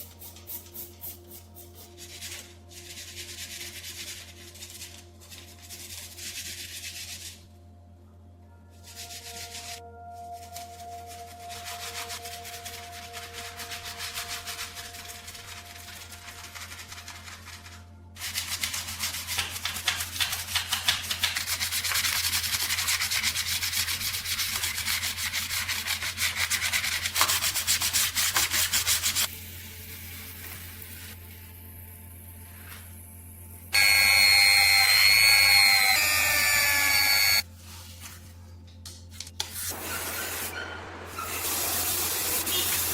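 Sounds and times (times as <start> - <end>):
abrasive sanding on metal: 0.0 - 7.5, 10.5 - 29.3.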